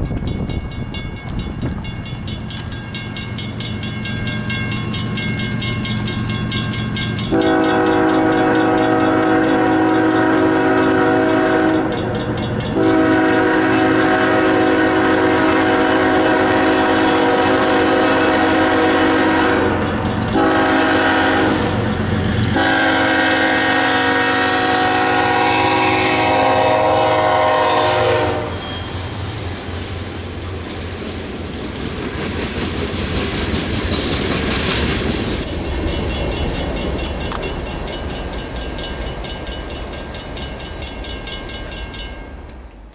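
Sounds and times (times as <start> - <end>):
locomotive engine drone: 0.0 - 42.9
train noise: 0.0 - 42.9
locomotive air horn: 7.3 - 11.9, 12.8 - 21.9, 22.6 - 28.8.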